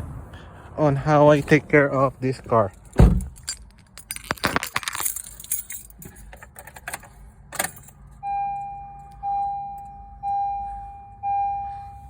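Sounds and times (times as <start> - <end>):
car keys jangling: 2.6 - 8.7
car warning chime: 8.2 - 12.0.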